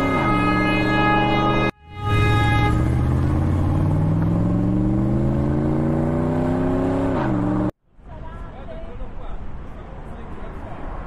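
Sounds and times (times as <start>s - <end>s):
car engine accelerating: 1.3s - 7.7s.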